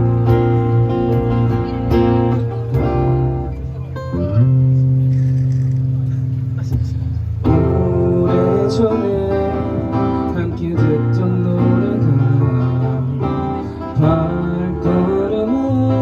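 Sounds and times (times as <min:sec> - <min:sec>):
cajon: 0:00.0 - 0:07.8
bass: 0:00.0 - 0:16.0
strummed acoustic guitar: 0:00.0 - 0:16.0.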